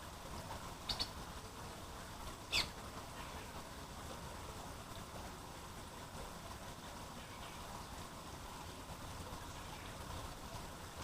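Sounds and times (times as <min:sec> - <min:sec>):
short high bird calls: 0:00.9 - 0:01.2, 0:02.5 - 0:03.5.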